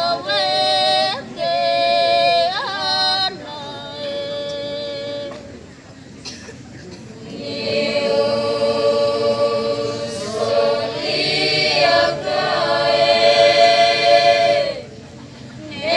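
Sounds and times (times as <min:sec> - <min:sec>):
choir singing long notes: 0:07.2 - 0:15.0, 0:15.7 - 0:15.9.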